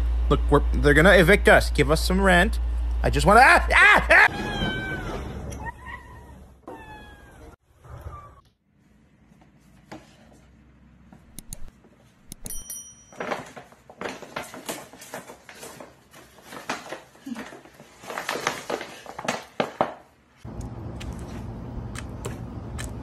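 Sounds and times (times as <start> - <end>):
paper bag rustling: 13.2 - 20.0.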